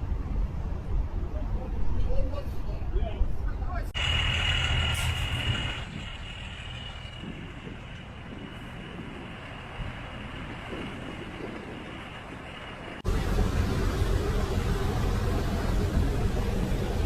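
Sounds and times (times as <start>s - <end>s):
vehicle rumble: 0.0s - 17.0s
deep engine rumble: 3.9s - 17.0s
wind noise on microphone: 4.8s - 14.7s.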